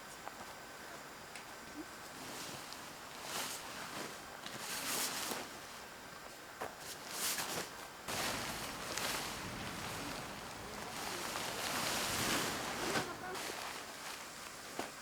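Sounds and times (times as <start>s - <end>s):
wind buffeting microphone: 8.1s - 13.5s
rustling: 8.1s - 14.5s.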